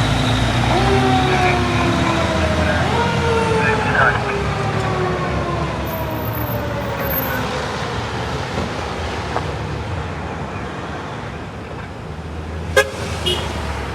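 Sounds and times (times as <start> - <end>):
fire engine siren: 0.0 - 8.9
traffic rumble: 0.0 - 13.9.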